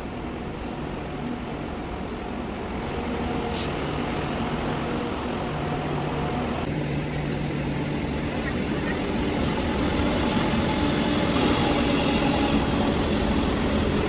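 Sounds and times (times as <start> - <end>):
high-speed train rumble: 0.0 - 14.0
brief hiss: 3.5 - 3.8.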